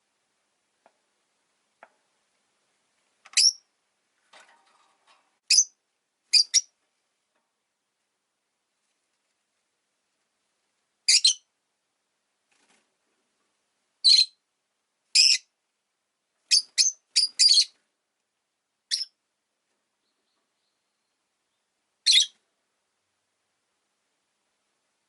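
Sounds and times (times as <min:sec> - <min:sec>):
lovebird chirping: 0:03.3 - 0:03.7, 0:05.5 - 0:06.7, 0:11.1 - 0:11.5, 0:14.0 - 0:14.4, 0:15.1 - 0:15.5, 0:16.5 - 0:17.8, 0:18.9 - 0:19.2, 0:20.0 - 0:22.4.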